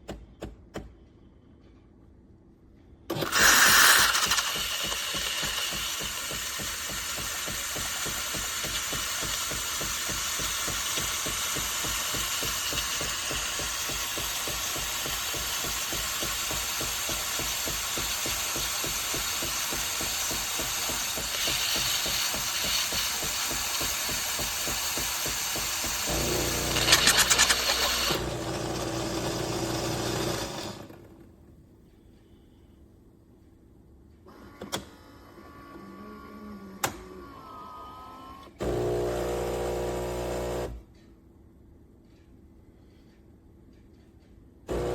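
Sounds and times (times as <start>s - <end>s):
coffee machine startup burst: 3.1s - 31.0s
coffee machine whirring: 3.1s - 31.2s, 34.4s - 40.8s.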